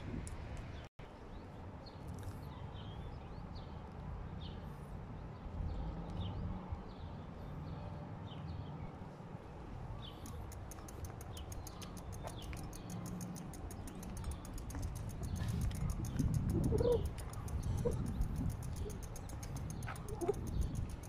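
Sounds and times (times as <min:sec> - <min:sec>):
small birds chirping: 0:00.7 - 0:21.0
steady low rumble: 0:09.7 - 0:21.0.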